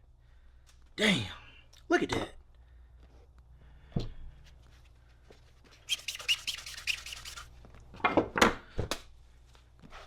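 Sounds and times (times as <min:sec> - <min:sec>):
scratching and rubbing handling noise: 0:04.5 - 0:07.7.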